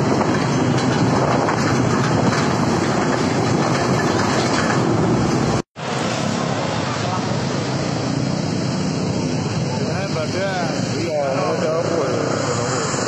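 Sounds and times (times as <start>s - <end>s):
wind rush on microphone: 0.0s - 6.2s
road vehicle noise: 0.0s - 13.0s.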